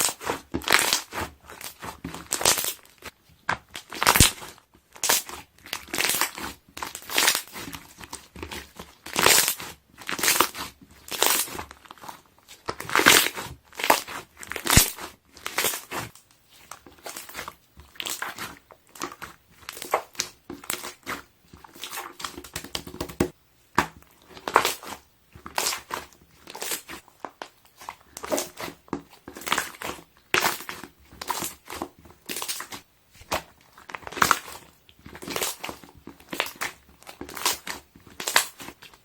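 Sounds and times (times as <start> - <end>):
air bubbles popping in slime: 22.2 - 23.3.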